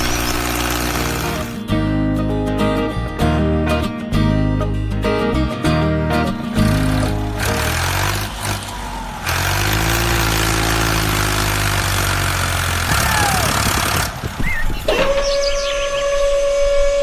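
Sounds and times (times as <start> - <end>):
engine running: 0.0 - 2.8, 6.0 - 15.2.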